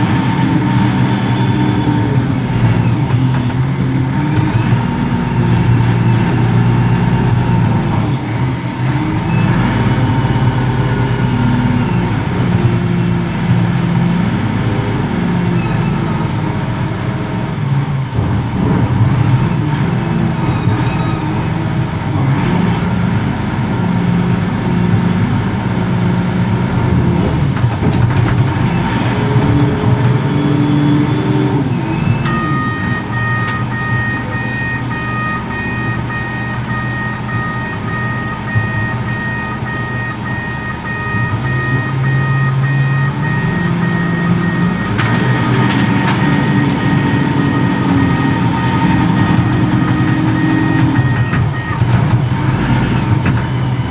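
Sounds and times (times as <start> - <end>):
diesel engine running: 0.0 - 53.9
high warning beep: 31.9 - 45.0, 46.3 - 52.5.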